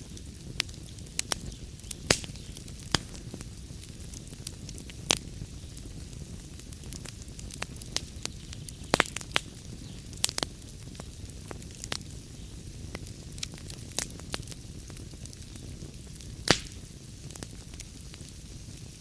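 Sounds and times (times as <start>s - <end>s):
fire crackles and pops: 0.0s - 19.0s
fire rumble and hiss: 0.0s - 19.0s.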